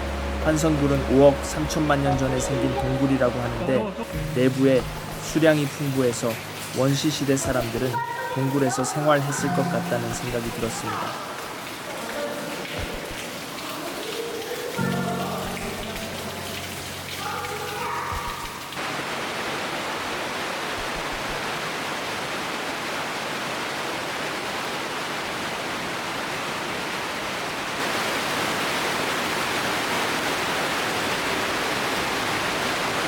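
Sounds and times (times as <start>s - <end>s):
faint voices or music: 0.0s - 18.6s
running water in cave: 0.0s - 33.0s.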